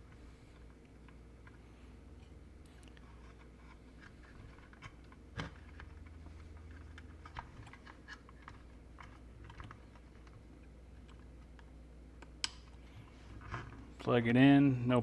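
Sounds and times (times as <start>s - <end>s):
small parts clicking and tapping: 4.0s - 12.8s.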